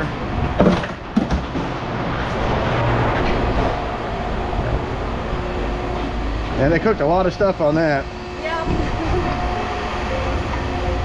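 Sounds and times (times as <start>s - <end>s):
heavy machinery rumbling: 0.0s - 11.0s
sharp knocks: 0.6s - 1.8s.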